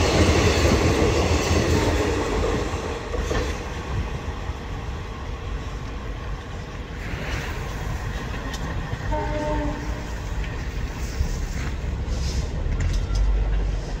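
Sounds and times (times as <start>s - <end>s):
train wheels rumbling and clattering: 0.0s - 14.0s
short train horn blast: 9.1s - 10.4s.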